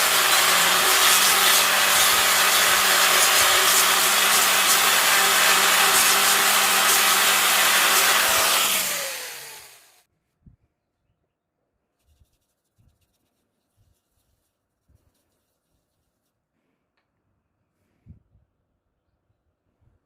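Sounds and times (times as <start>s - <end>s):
lathe motor running and winding down: 0.0s - 10.0s.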